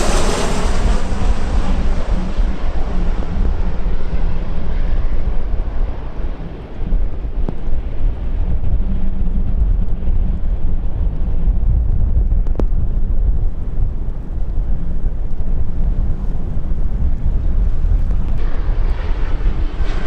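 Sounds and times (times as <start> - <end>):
jet engines rumbling: 0.0 - 20.0
wind buffeting microphone: 0.0 - 20.0.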